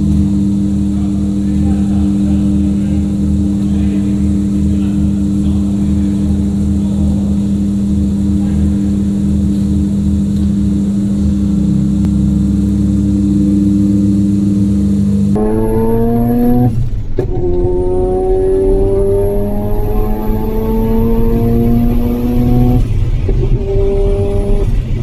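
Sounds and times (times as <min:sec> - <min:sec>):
rotary engine running steadily: 0:00.0 - 0:25.0.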